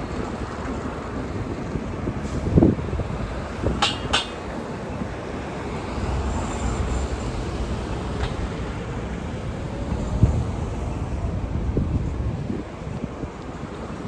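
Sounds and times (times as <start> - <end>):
road traffic rumbling: 0.0 - 14.0
sharp clacks: 3.8 - 4.5.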